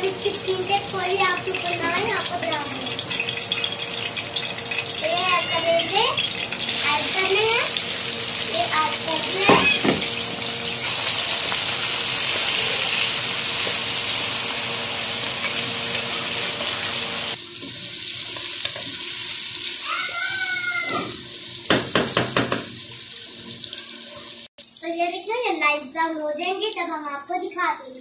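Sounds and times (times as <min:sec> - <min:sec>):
vegetables sizzling in hot oil: 0:00.0 - 0:28.0
wooden spatula knocking on pan: 0:09.4 - 0:10.1, 0:20.9 - 0:22.8.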